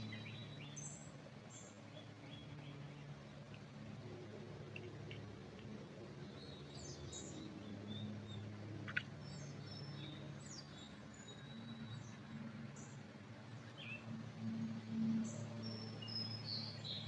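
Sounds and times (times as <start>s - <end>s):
small birds chirping: 0.0s - 3.7s, 6.1s - 14.1s, 15.2s - 17.0s
low background hum: 0.0s - 17.0s.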